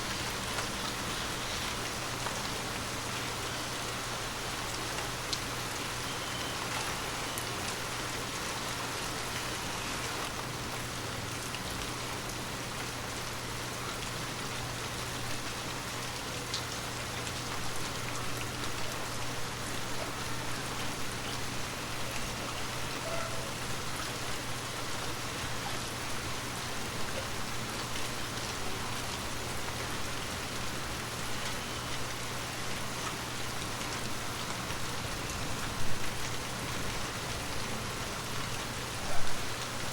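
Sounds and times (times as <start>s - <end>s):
heavy rain falling: 0.0s - 39.9s
raindrops ticking on surfaces: 0.0s - 39.9s.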